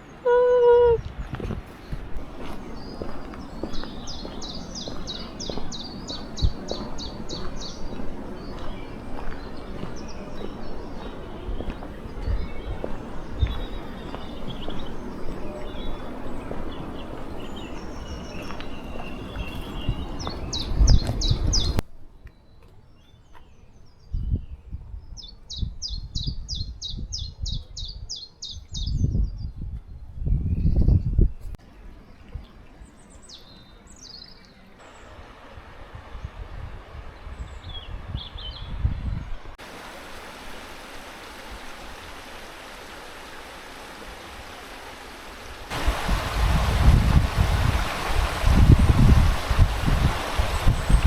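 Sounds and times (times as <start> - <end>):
river water running: 0.0 - 21.8, 31.6 - 38.5, 39.5 - 51.0
wind rumbling on microphone: 0.0 - 22.2, 23.8 - 33.4, 34.9 - 42.8, 44.1 - 51.0
songbird singing: 0.0 - 35.3, 37.2 - 39.6, 45.7 - 51.0
low wind thumps: 1.0 - 21.8, 45.4 - 51.0.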